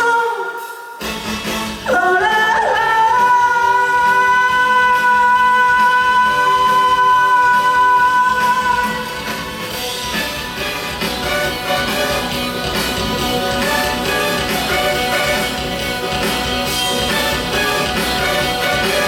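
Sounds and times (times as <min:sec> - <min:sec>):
woman singing long high note: 0:00.0 - 0:00.9, 0:01.9 - 0:09.1
backing music: 0:00.0 - 0:19.0.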